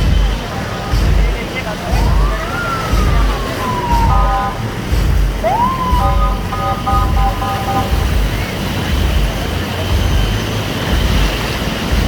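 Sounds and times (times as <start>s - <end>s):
low traffic rumble: 0.0s - 12.0s
siren-like sweeping tone: 2.0s - 8.0s
vehicle horns honking: 6.0s - 8.6s.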